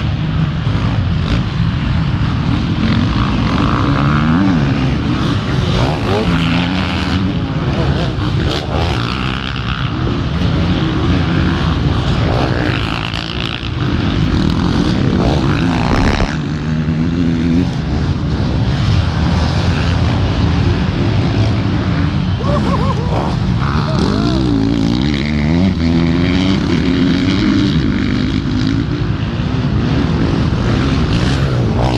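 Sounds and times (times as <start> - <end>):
motorcycle engines revving: 0.0 - 31.9.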